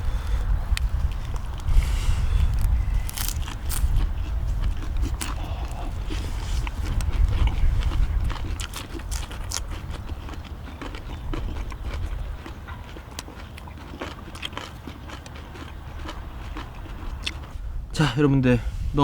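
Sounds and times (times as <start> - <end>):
steady low rumble: 0.0 - 14.4, 15.2 - 19.0
chewing: 0.7 - 17.6.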